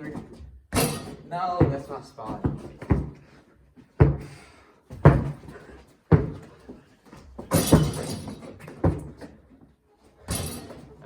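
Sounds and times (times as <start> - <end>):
ball rattling on hoop: 0.0 - 3.1, 7.4 - 9.4, 10.2 - 11.0.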